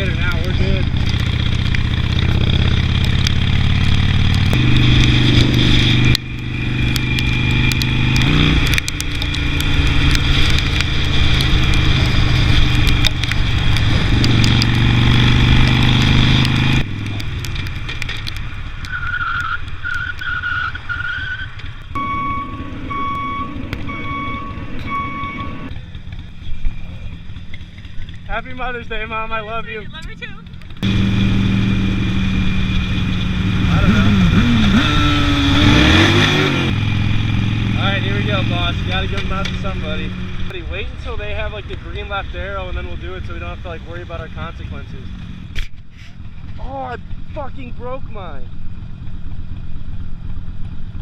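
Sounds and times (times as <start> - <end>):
motorcycle engine accelerating: 0.0 - 18.9, 21.5 - 51.0
electronic beeps: 21.9 - 25.7.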